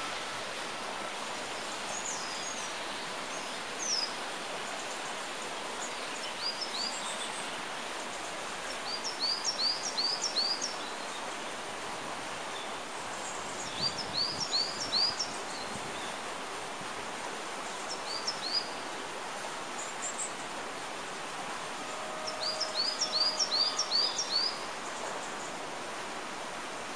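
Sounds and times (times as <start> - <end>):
outdoor background hiss: 0.0 - 26.9
songbird singing: 1.5 - 11.6, 12.5 - 16.2, 17.6 - 18.9, 21.8 - 25.6.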